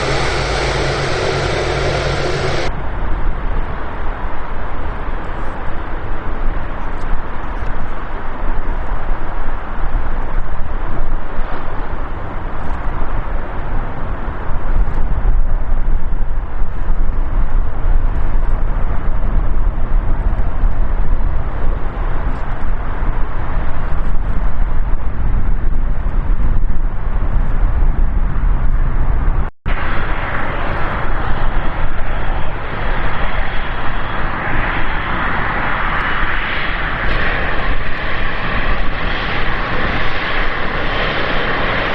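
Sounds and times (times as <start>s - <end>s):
hissing jet whine: 0.0s - 2.9s, 29.7s - 41.9s
jet engines rumbling: 0.0s - 41.9s.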